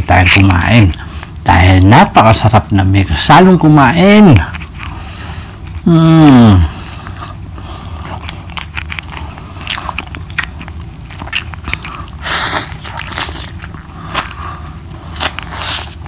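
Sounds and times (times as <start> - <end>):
wet chewing clicks and smacks: 7.0 - 16.0
man biting chicken: 8.0 - 16.0.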